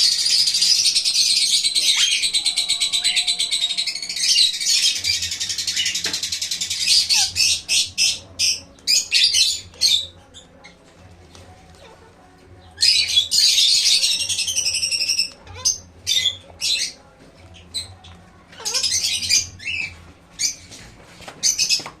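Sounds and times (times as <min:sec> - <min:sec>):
parrot squawking: 0:00.0 - 0:10.0, 0:12.8 - 0:17.0, 0:18.5 - 0:19.9.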